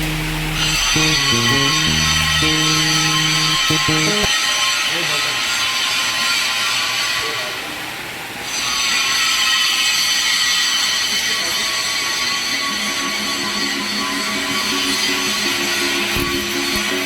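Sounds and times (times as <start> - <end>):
arc welding crackling hiss: 0.0 - 4.3.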